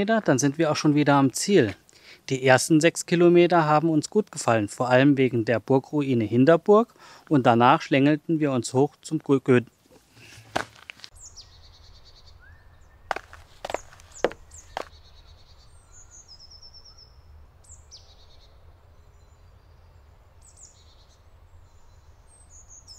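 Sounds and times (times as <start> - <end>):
songbirds chirping and singing: 11.2 - 22.9.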